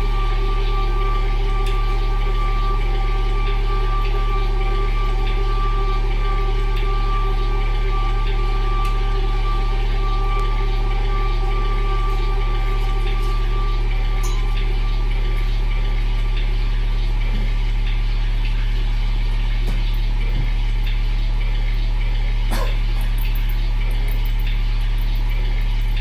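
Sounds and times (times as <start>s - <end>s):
higher held tones: 0.0s - 16.2s
low electronic drone: 0.0s - 26.0s.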